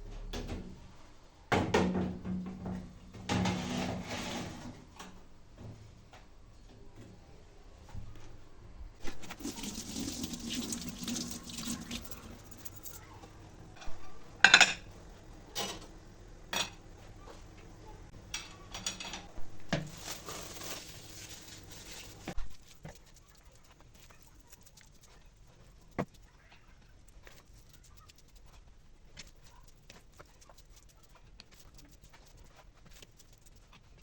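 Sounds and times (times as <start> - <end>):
water running from a tap: 9.1 - 12.9
dishes and utensils clattering: 13.8 - 14.9, 18.3 - 19.9.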